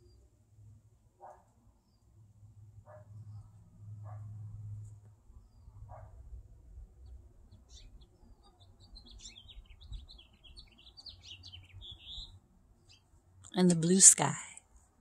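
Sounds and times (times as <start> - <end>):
songbird twittering: 7.5 - 13.0.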